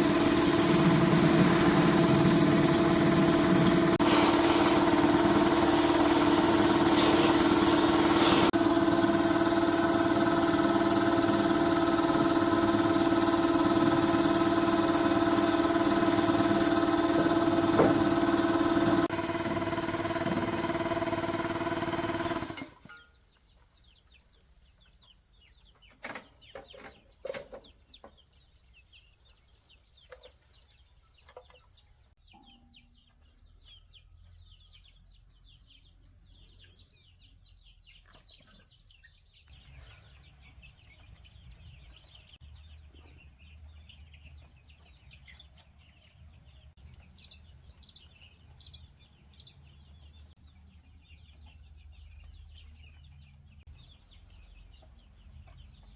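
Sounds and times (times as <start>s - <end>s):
high-pitched drone: 0.0s - 19.1s
birds chirping: 0.0s - 22.4s
small engine cutting off: 0.0s - 22.9s.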